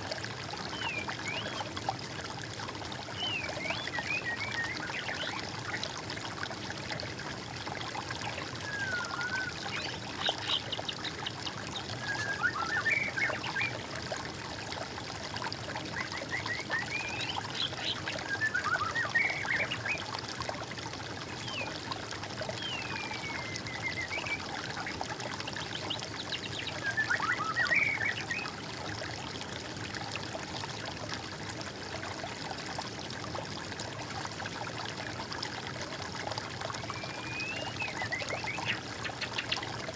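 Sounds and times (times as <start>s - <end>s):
water trickling: 0.0s - 39.9s
songbirds singing: 3.2s - 5.5s, 8.3s - 13.8s, 16.0s - 20.1s, 22.5s - 28.6s, 36.8s - 39.8s.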